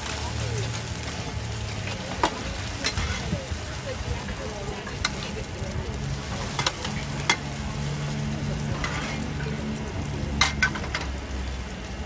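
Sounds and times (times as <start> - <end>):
pancakes sizzling in oil: 0.0 - 12.0
ladle and spatula scraping pan: 1.8 - 3.4, 8.6 - 9.5.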